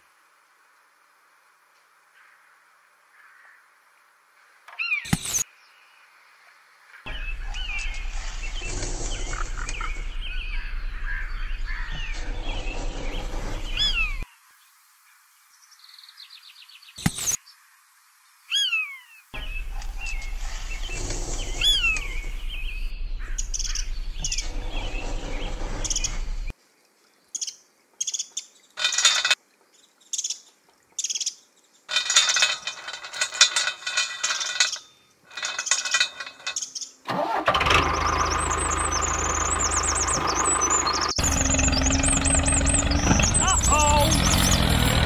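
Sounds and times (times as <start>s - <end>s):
bird chirps: 7.1s - 14.2s, 18.5s - 26.5s, 37.8s - 45.0s
steady low hum: 7.1s - 14.2s, 19.4s - 26.5s
metal chain being handled: 28.8s - 29.4s, 31.9s - 36.7s
plastic toy parts rattling: 28.8s - 29.4s, 31.9s - 37.4s
toy engine running: 31.9s - 45.0s.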